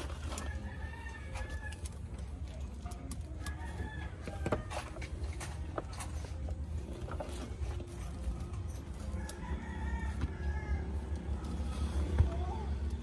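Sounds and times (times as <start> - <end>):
rooster crowing: 0.3 - 1.9, 9.0 - 11.3.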